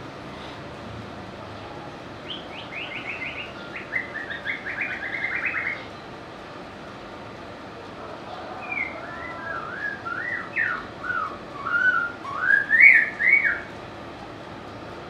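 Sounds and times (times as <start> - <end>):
bird singing whistled notes: 2.3 - 5.9, 8.7 - 13.7.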